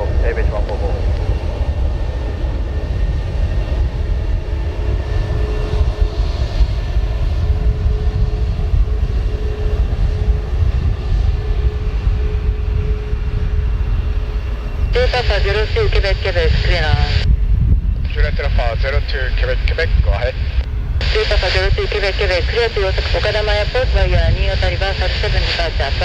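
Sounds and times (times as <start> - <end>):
jet engines at takeoff thrust: 0.0 - 26.0.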